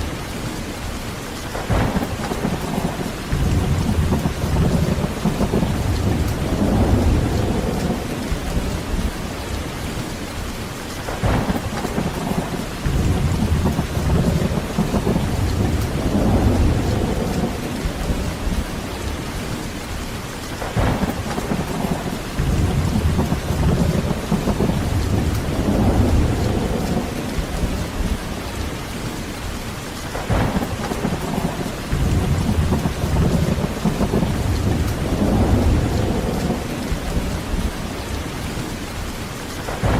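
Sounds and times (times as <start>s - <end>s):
heavy rain falling: 0.0s - 39.9s
thunder cracks: 1.5s - 8.7s, 11.1s - 18.6s, 20.6s - 28.2s, 30.1s - 37.7s, 39.7s - 39.9s
rolling thunder rumbling: 1.5s - 10.0s, 11.1s - 20.0s, 20.6s - 38.8s, 39.6s - 39.9s.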